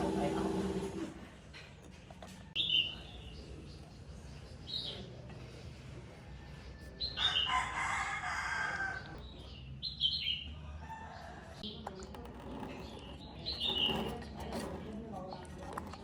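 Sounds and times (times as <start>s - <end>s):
birds chirping: 6.6s - 16.0s.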